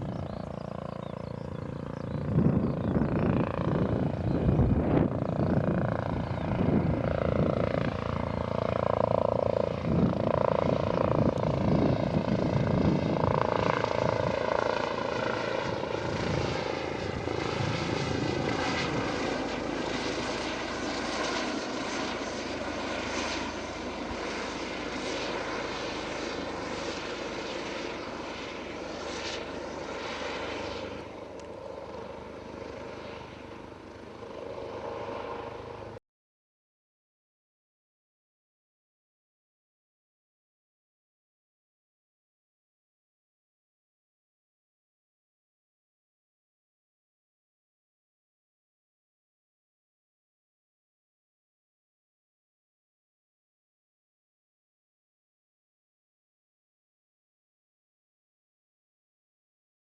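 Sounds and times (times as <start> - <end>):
aircraft engine drone: 0.0 - 36.0.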